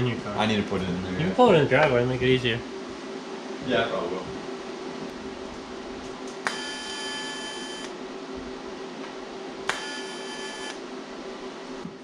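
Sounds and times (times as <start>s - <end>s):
steady low hum: 0.0s - 12.0s
electric welder buzz: 6.3s - 8.0s, 9.6s - 10.8s
sharp welder click: 9.7s - 9.9s.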